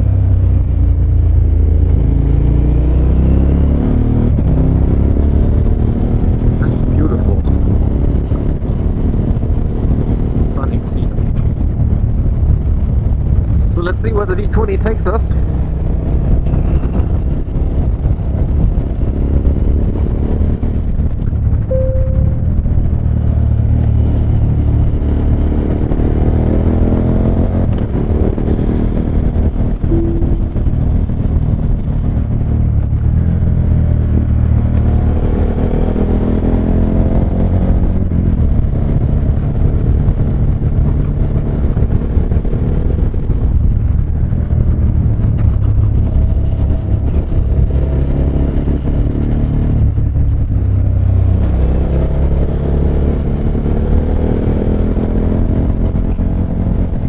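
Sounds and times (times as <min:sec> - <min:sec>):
motorcycle engine under way: 0:00.0 - 0:13.3, 0:15.4 - 0:57.0.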